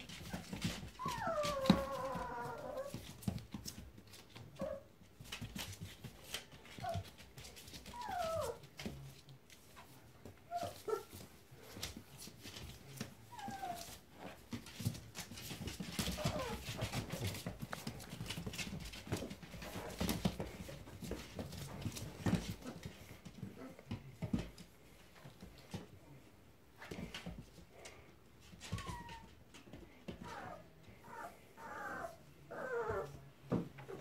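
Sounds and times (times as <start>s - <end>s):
puppies scuffling: 0.0s - 34.0s
puppies whining: 0.3s - 3.0s, 7.8s - 8.7s, 13.3s - 14.0s, 16.0s - 18.0s, 28.6s - 29.4s, 30.2s - 33.2s.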